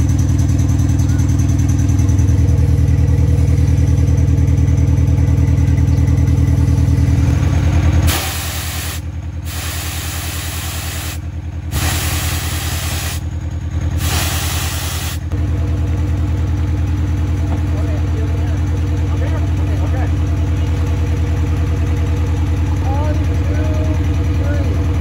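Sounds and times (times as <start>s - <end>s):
diesel engine idling: 0.0s - 25.0s
loud hiss: 8.1s - 13.2s, 14.0s - 15.2s.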